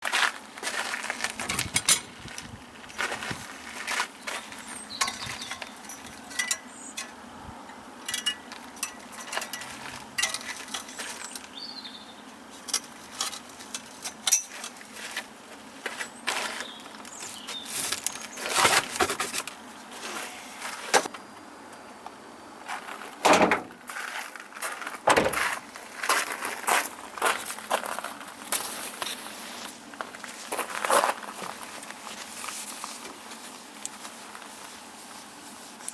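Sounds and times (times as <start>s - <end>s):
tools and car parts clicking: 1.4s - 2.2s, 4.9s - 11.5s, 12.6s - 14.8s.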